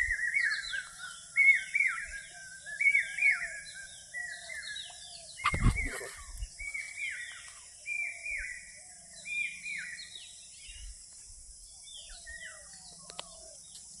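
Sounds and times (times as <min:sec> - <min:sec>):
birds whistling falling notes: 0:00.0 - 0:08.6.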